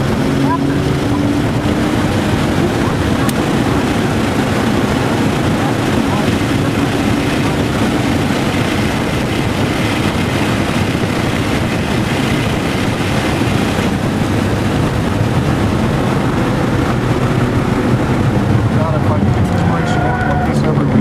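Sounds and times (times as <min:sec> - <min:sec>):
car engine running hard: 0:00.0 - 0:21.0
tyre and wind noise: 0:00.0 - 0:21.0.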